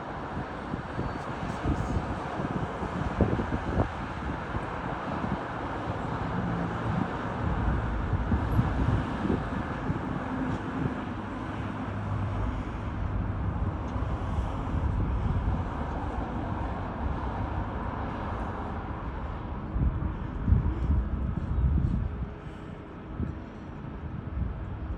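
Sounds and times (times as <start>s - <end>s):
wind buffeting microphone: 0.1s - 24.9s.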